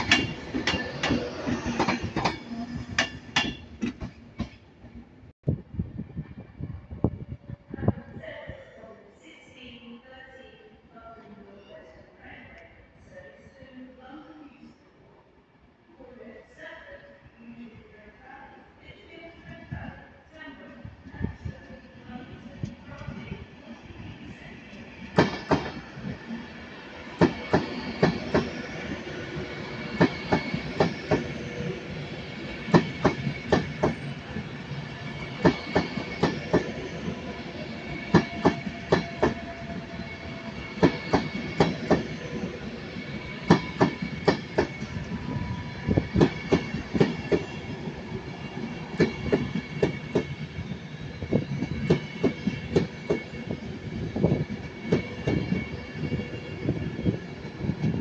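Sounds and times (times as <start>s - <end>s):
train rolling rumble: 0.0s - 8.2s, 20.9s - 58.0s.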